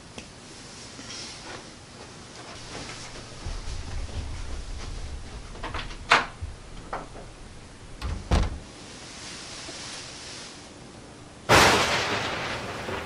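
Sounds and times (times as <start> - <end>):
footsteps on wooden floor: 2.4 - 7.6.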